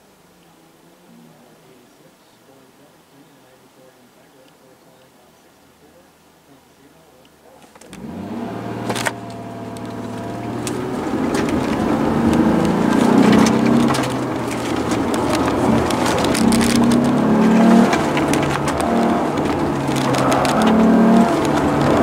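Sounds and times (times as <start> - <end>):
car engine accelerating: 7.9 - 22.0.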